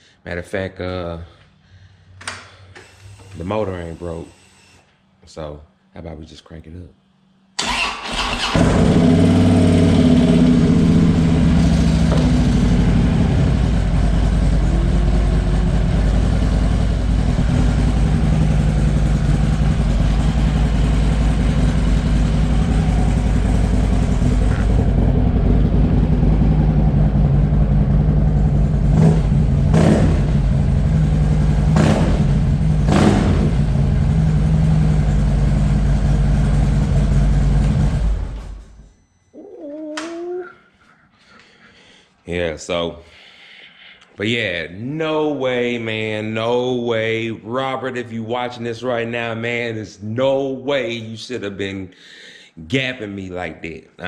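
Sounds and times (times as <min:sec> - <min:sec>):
motorcycle engine running: 0:08.6 - 0:38.4.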